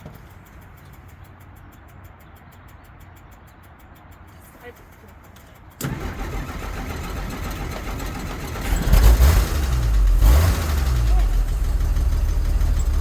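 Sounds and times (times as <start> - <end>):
car engine starting and revving: 5.8 - 13.0.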